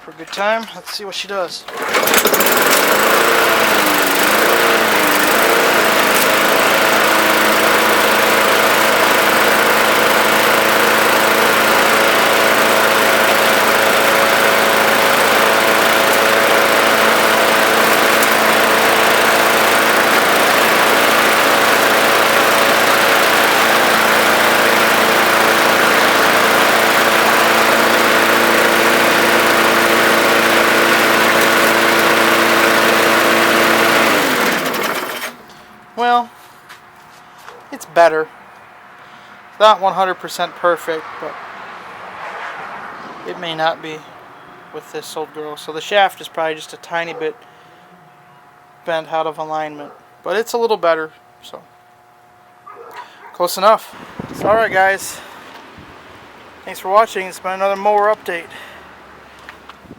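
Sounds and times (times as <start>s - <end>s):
push mower engine running: 1.6s - 36.2s, 45.0s - 47.8s, 52.7s - 55.6s, 56.7s - 59.9s.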